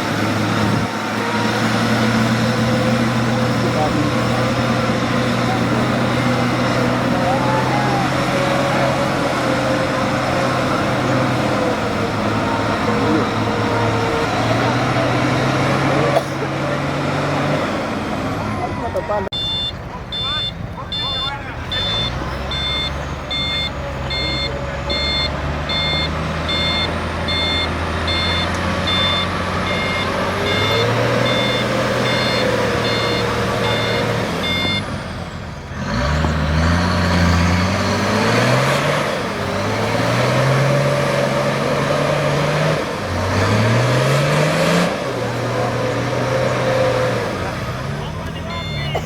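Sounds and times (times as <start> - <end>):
off-road engine revving: 0.0 - 49.0
electronic beeper: 19.3 - 34.9, 48.4 - 49.0.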